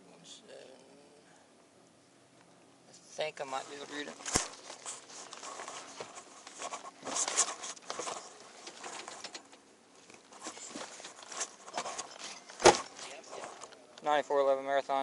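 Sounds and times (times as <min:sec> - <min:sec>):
rustling: 0:03.4 - 0:13.9.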